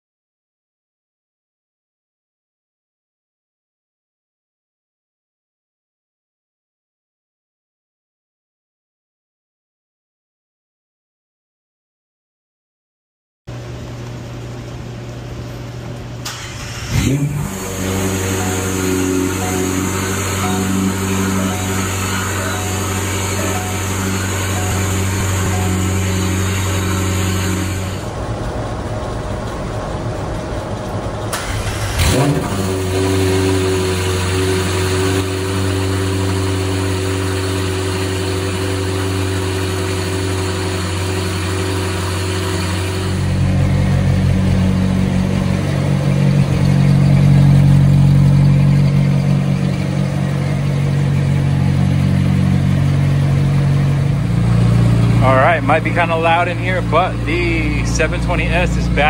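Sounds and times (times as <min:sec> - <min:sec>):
car engine idling: 0:15.9 - 0:59.0
engine revving flare: 0:16.2 - 0:59.0.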